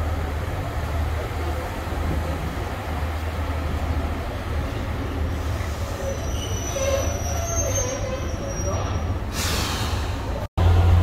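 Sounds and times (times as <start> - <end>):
diesel train rumbling: 0.0 - 11.0
high-pitched brake squeal: 5.6 - 10.1.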